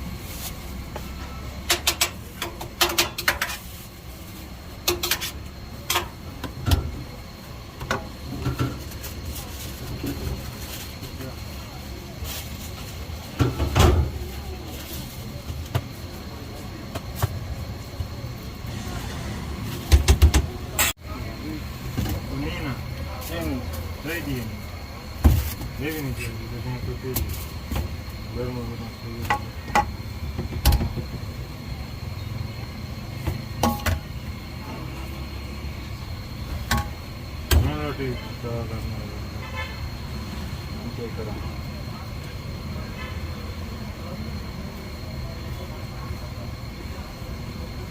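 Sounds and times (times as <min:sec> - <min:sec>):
road traffic rumble: 0:00.0 - 0:47.9.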